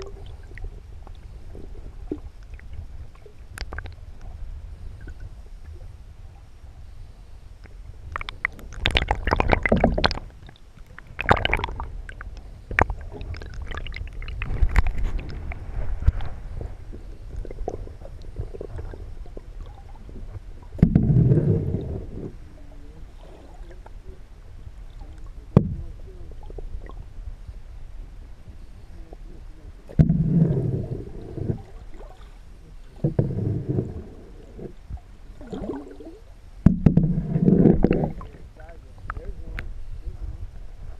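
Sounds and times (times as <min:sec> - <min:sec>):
underwater river gurgling: 0:00.0 - 0:40.9
bubbling water gushes: 0:08.0 - 0:22.4, 0:30.0 - 0:32.3, 0:35.4 - 0:38.6.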